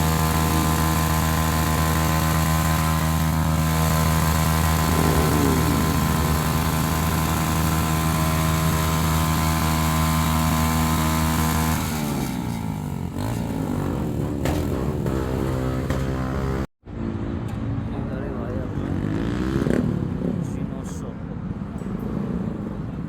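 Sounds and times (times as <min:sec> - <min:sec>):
motorcycle engines idling: 0:00.0 - 0:16.7
motorcycle engines revving: 0:00.0 - 0:21.0, 0:21.6 - 0:23.0.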